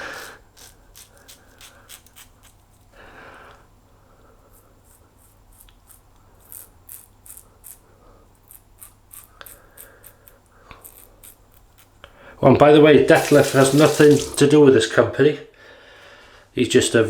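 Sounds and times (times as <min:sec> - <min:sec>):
razor scraping stubble: 0:00.0 - 0:02.9, 0:04.5 - 0:12.0, 0:13.0 - 0:14.5.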